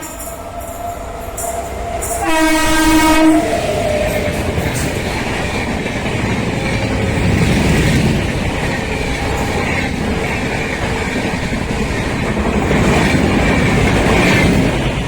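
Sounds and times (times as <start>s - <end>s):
train horn blast: 0.0s - 0.8s, 1.4s - 3.8s
train coaches rushing past: 0.0s - 15.0s.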